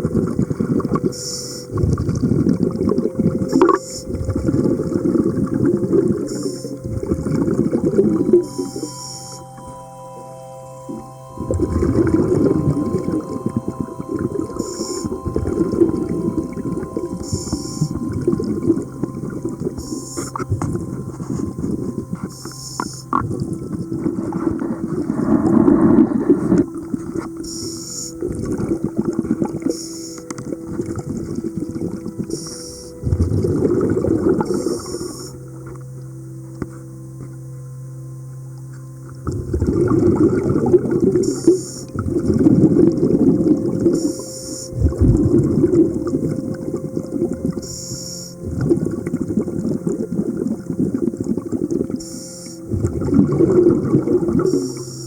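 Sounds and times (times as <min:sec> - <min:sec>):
gurgling exhaled bubbles: 0:00.0 - 0:08.8, 0:10.9 - 0:22.3, 0:23.1 - 0:27.4, 0:30.4 - 0:35.4, 0:39.2 - 0:47.7, 0:48.4 - 0:54.9
steady low hum: 0:00.0 - 0:55.0
regulator hiss: 0:01.1 - 0:01.8, 0:06.2 - 0:06.9, 0:14.6 - 0:15.8, 0:16.7 - 0:18.1, 0:21.1 - 0:28.4, 0:29.6 - 0:30.3, 0:32.2 - 0:33.1, 0:34.4 - 0:35.6, 0:41.1 - 0:42.0, 0:43.8 - 0:45.0, 0:47.5 - 0:48.6, 0:51.8 - 0:52.7, 0:54.3 - 0:55.0
bubbling exhalation: 0:11.4 - 0:19.4, 0:23.2 - 0:26.8, 0:44.7 - 0:46.3, 0:52.7 - 0:54.7
hissy regulator inhalations: 0:32.3 - 0:32.9.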